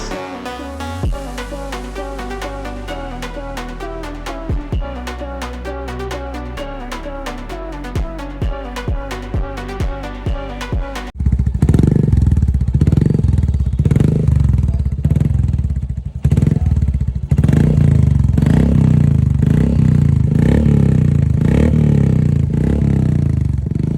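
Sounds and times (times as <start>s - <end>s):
background music: 0.0s - 11.2s
loud motorcycle engine running: 11.2s - 23.9s.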